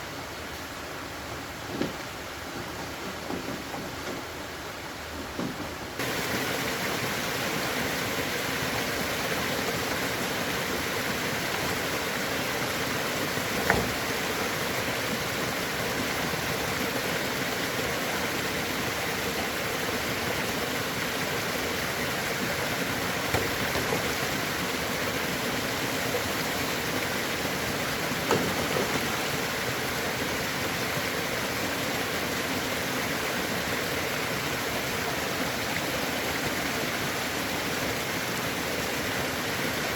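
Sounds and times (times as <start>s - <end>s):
rushing water: 0.0s - 39.9s
short knocks: 13.5s - 14.1s, 23.2s - 24.5s.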